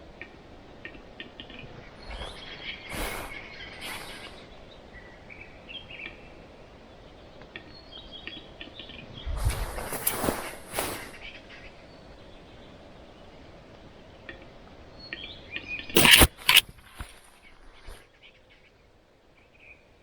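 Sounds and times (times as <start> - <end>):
rustling: 16.0 - 18.0.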